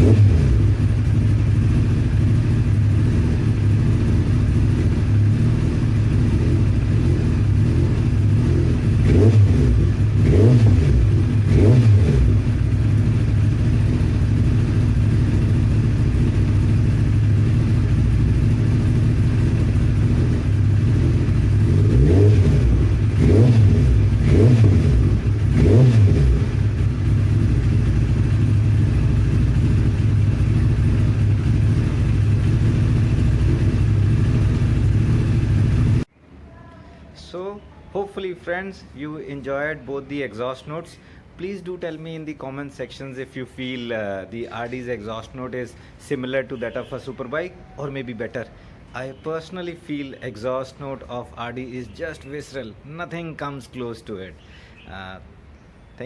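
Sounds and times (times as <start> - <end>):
engine throttle blips: 0.0 - 36.1
motorcycle engine idling: 0.0 - 36.1.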